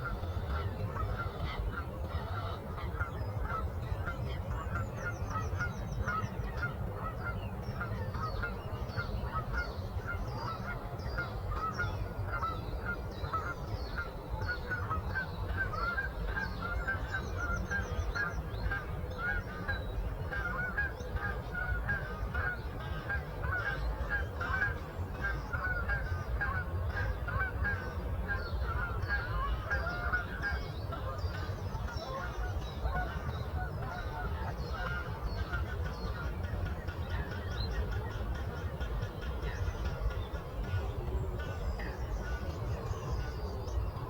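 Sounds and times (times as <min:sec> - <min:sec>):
flock of birds calling: 0:00.0 - 0:44.0.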